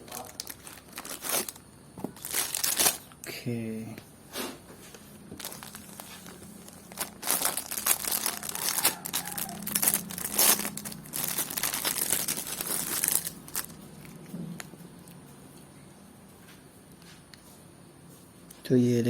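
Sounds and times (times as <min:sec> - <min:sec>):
plastic packaging crinkling: 0:00.0 - 0:03.2, 0:05.2 - 0:15.2.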